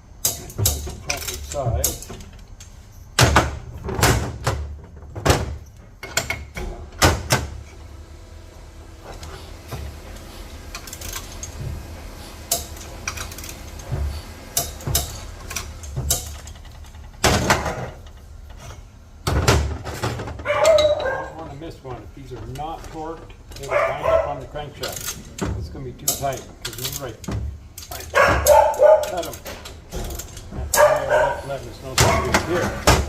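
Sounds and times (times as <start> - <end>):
hand tools clicking on metal: 0.2 - 2.8, 22.5 - 31.4.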